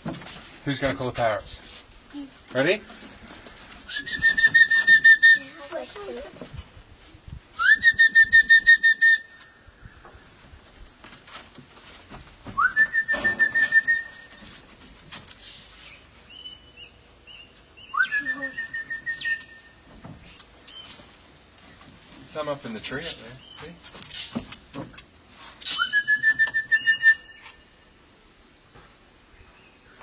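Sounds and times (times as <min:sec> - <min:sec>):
person whistling: 0:03.9 - 0:05.5, 0:07.6 - 0:09.4, 0:12.6 - 0:14.3, 0:25.7 - 0:27.4.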